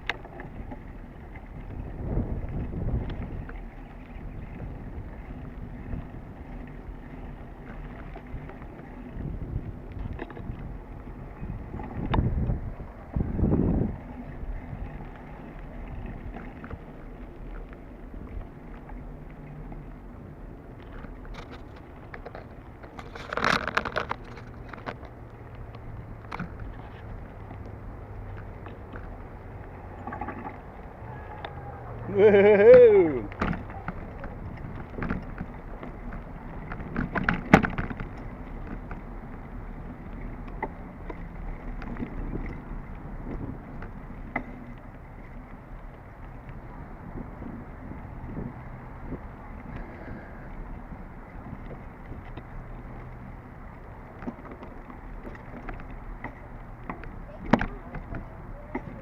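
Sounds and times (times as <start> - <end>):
wind on microphone: 0.0 - 18.6, 25.8 - 53.3
faint clicks and rattles: 0.0 - 31.6, 33.3 - 59.0
bicycle tyres rumbling on dirt: 0.0 - 59.0.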